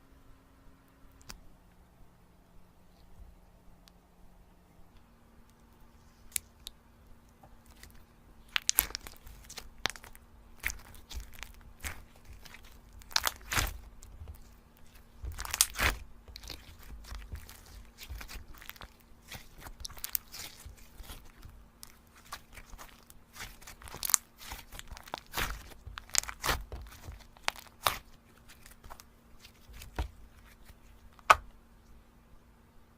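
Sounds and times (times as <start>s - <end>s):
slime crunching and crackling: 7.6s - 31.4s.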